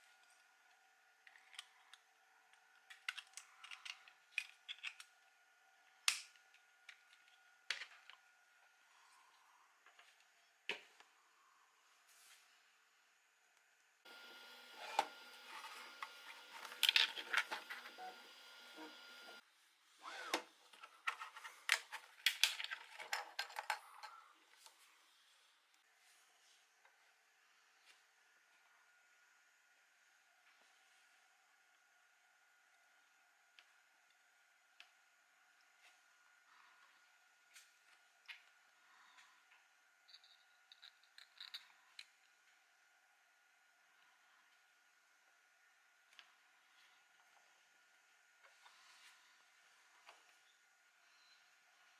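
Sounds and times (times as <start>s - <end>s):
plastic parts clicking and tapping: 1.3s - 5.2s, 15.0s - 18.0s, 20.7s - 24.2s.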